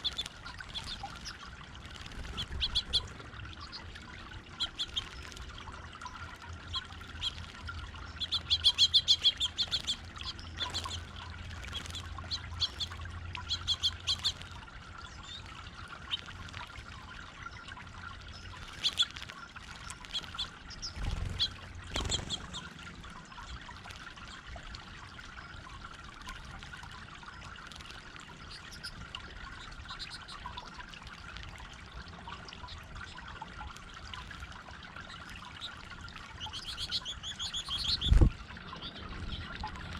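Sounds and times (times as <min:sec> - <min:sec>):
small birds chirping: 0:00.0 - 0:39.9
water fountain trickling: 0:00.0 - 0:39.9.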